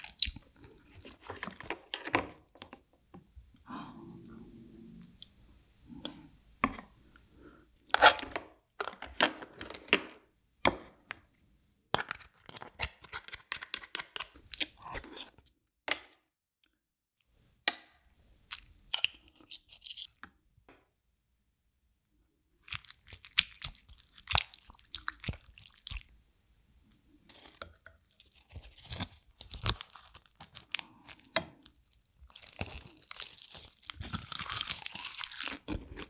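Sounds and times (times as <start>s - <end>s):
chewing crab and rice: 22.6s - 26.1s, 27.3s - 36.0s.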